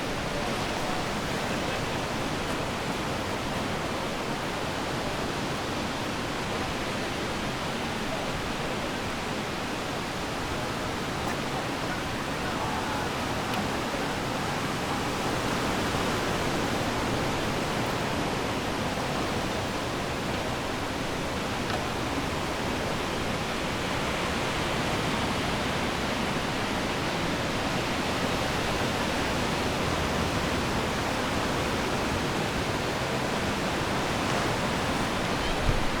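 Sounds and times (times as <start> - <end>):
ocean waves washing on shore: 0.0 - 36.0.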